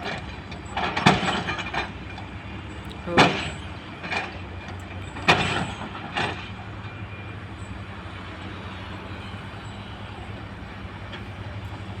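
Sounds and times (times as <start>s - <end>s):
heavy diesel engine running: 0.0s - 12.0s
metallic clanks: 3.1s - 6.6s.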